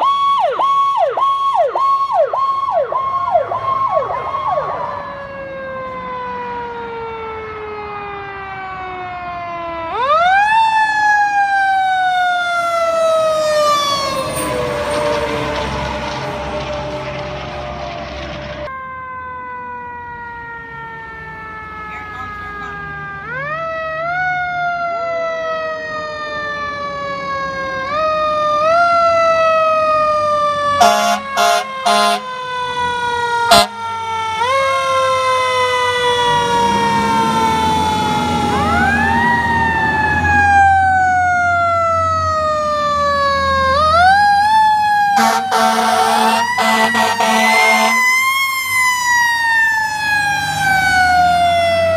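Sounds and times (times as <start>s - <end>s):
fire truck siren wailing: 0.0s - 51.9s
low engine rumble: 13.0s - 18.7s
horn blasts: 30.8s - 32.3s, 33.4s - 33.9s, 45.2s - 48.1s.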